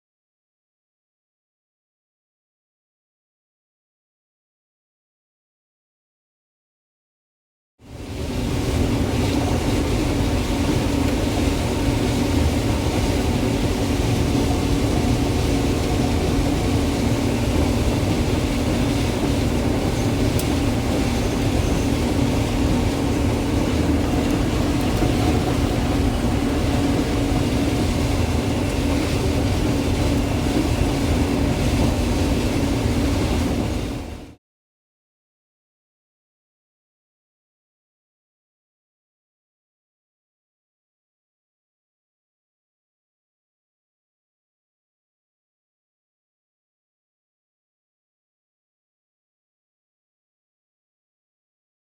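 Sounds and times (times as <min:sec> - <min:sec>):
heavy machinery humming: 0:07.9 - 0:34.4.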